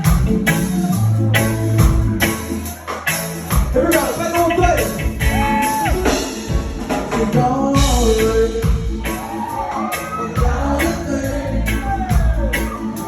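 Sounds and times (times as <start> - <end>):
reggae band music: 0.0 - 13.0
lead vocal singing: 6.9 - 13.0.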